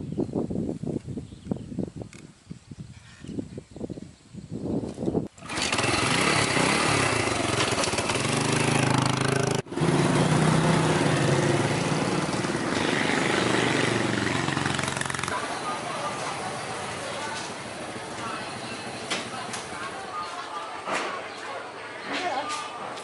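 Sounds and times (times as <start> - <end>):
small engine running: 5.4 - 19.8.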